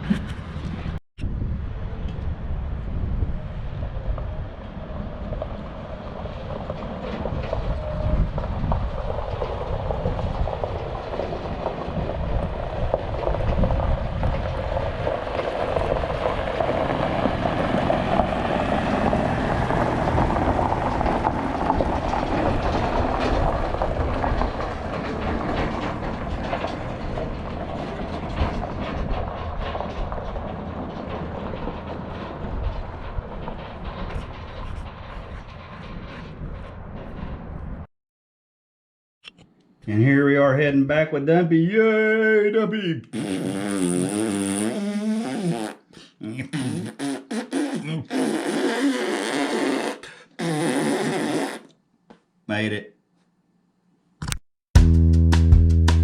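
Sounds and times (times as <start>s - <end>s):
moving vehicle rumbling: 0.0s - 37.9s.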